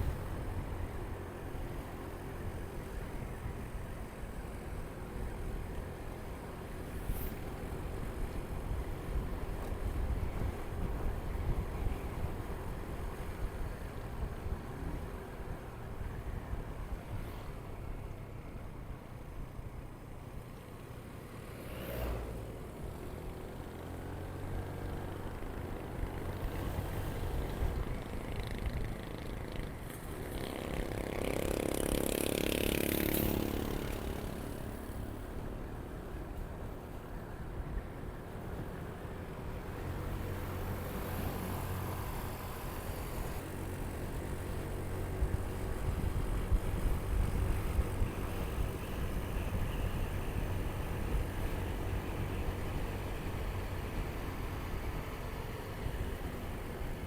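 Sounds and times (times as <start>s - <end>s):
road noise: 0.0s - 57.0s
motorcycle engine running: 24.5s - 35.8s
wind noise: 44.6s - 53.7s.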